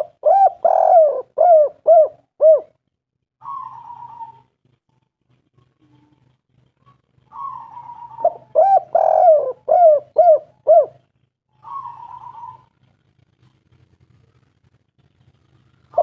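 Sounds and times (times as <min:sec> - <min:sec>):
dove cooing: 0:00.0 - 0:02.8, 0:03.4 - 0:04.8, 0:05.6 - 0:13.3, 0:15.8 - 0:16.0.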